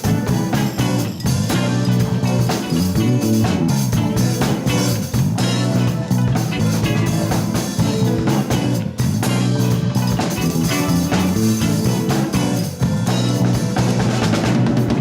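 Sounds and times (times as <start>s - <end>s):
bass line: 0.0s - 15.0s
drum kit beat: 0.0s - 15.0s
guitar chords: 0.0s - 15.0s.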